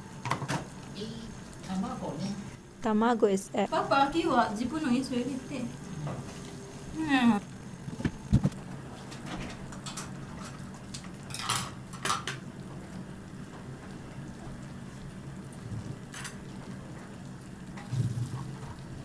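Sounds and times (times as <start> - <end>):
utensils clinking on pot: 11.3 - 12.4.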